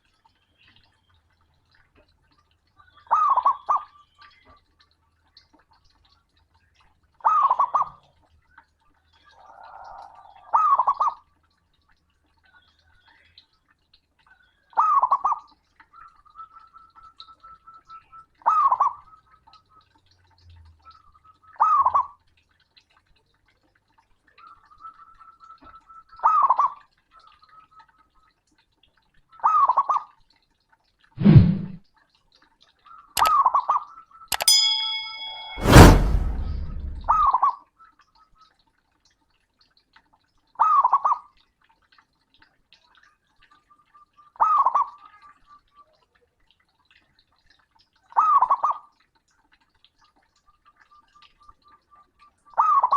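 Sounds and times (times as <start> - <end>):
faint steady high tone: 34.3 - 37.3.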